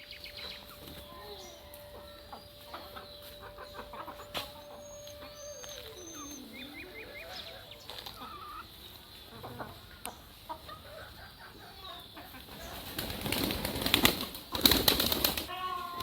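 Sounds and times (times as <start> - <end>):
wings flapping: 0.0 - 8.6, 12.5 - 16.0
chickens clucking: 0.0 - 16.0
small birds calling: 0.0 - 16.0.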